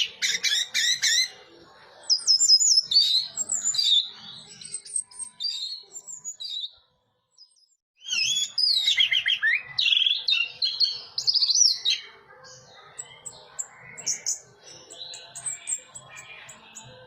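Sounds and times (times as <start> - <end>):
bird chirps: 0.0 - 17.0
thrush singing warbled phrases: 12.0 - 17.0.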